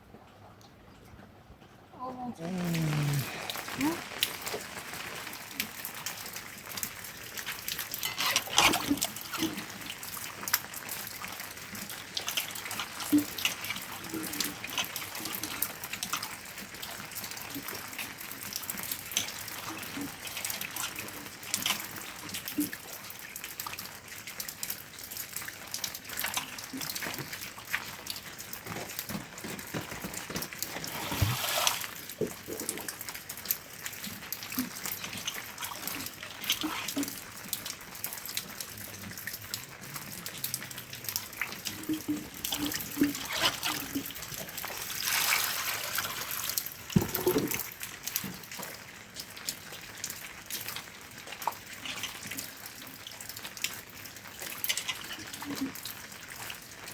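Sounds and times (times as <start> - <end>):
water drips: 0.0 - 56.9
water trickling and splashing: 0.0 - 56.9.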